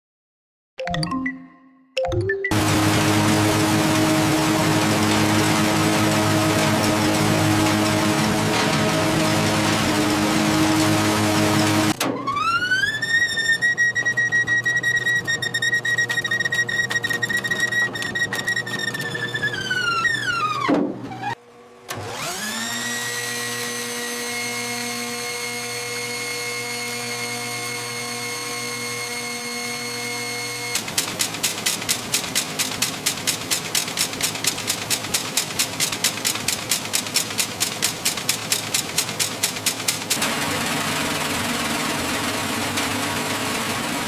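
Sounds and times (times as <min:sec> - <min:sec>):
electric motor whine: 0:02.5 - 0:12.0, 0:21.4 - 0:30.8
rapid mechanical beat: 0:30.8 - 0:43.9.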